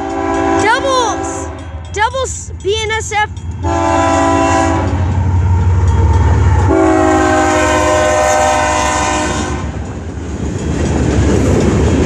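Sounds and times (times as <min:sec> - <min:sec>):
locomotive air horn: 0:00.0 - 0:01.8, 0:03.6 - 0:05.1, 0:06.7 - 0:09.8
locomotive engines rumbling: 0:00.0 - 0:12.0
passing train rolling: 0:00.0 - 0:12.0.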